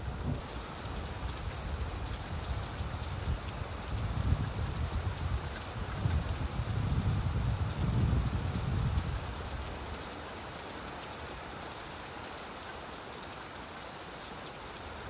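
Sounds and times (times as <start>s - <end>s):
low rumble of thunder: 0.0s - 9.7s
steady rainfall hissing: 0.0s - 15.0s.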